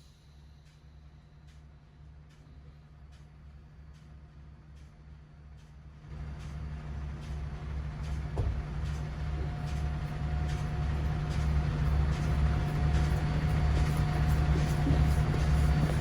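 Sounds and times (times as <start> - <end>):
diesel truck engine rumbling: 7.6 - 16.0.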